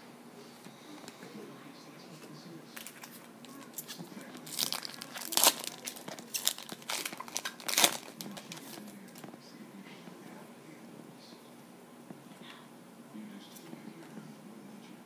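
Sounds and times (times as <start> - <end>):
card pack wrappers crinkling: 2.7 - 9.2.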